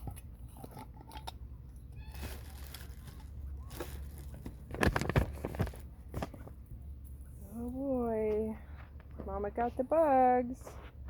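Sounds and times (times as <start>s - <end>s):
bag crinkling and rustling: 1.9s - 6.6s.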